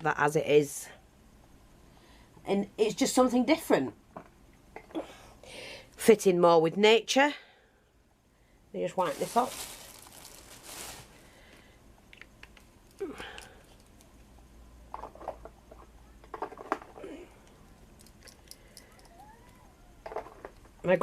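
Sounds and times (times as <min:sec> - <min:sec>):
light clicks and handling noises: 0:11.5 - 0:20.8.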